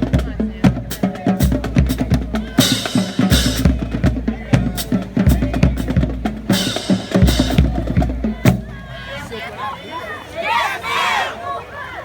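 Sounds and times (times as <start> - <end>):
marching drumline: 0.0 - 9.4
cymbals crashing: 6.4 - 9.1.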